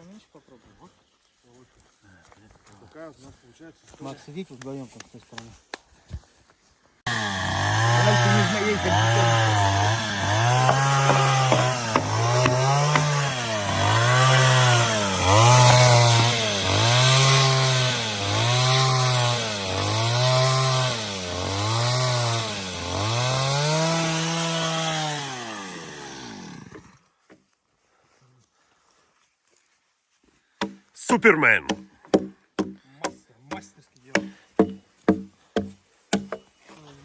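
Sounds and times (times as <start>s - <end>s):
chainsaw cutting wood: 7.1s - 27.0s, 34.1s - 36.4s.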